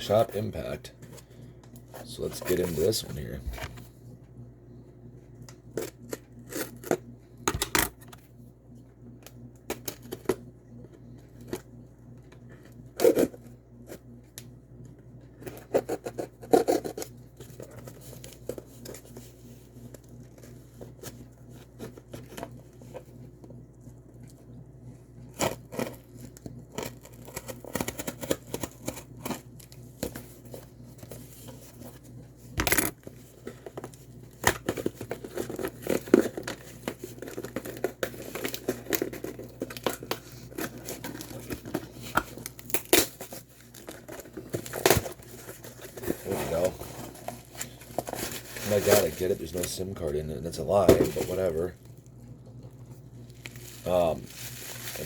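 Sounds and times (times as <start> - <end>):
faint low hum: 0.0 - 55.0
packaging rustling and tearing: 33.0 - 51.8, 53.2 - 55.0.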